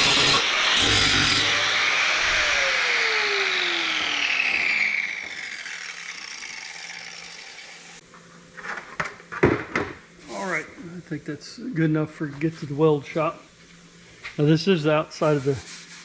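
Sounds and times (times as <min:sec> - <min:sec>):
power tool motor spinning down: 0:00.0 - 0:08.0
power tool on sheet metal: 0:00.0 - 0:08.0.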